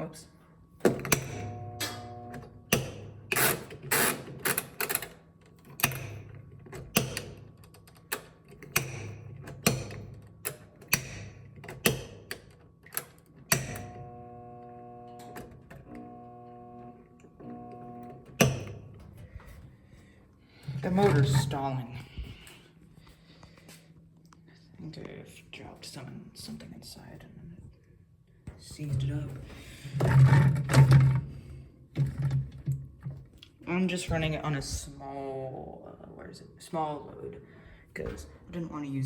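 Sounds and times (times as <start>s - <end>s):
washing machine motor humming: 0.8s - 4.4s, 13.4s - 22.8s.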